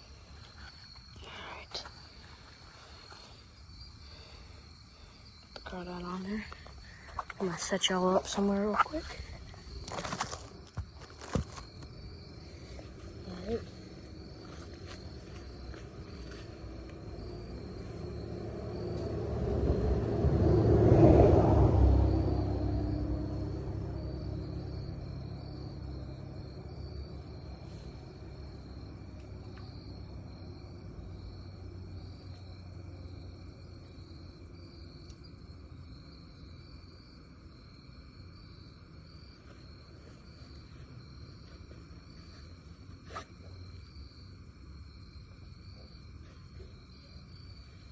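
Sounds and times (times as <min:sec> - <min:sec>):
insect buzz: 0:00.0 - 0:47.9
road vehicle approaching: 0:11.6 - 0:36.7.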